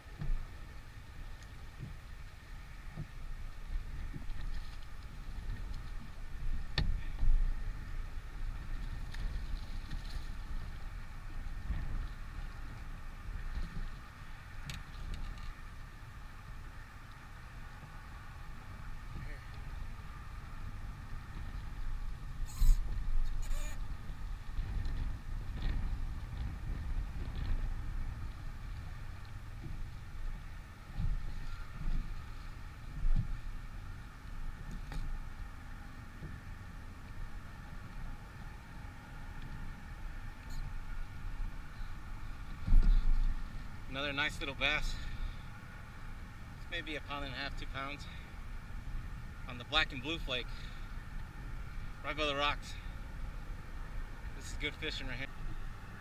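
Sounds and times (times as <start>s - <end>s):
faint high hum: 0.0s - 56.0s
wind rumble on microphone: 0.0s - 56.0s
wind buffeting microphone: 17.8s - 44.6s.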